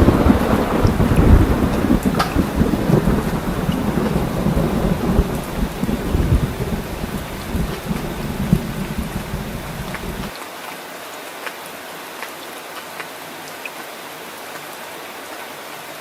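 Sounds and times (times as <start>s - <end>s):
rolling rumble of thunder: 0.0s - 10.3s
steady rain: 0.0s - 16.0s.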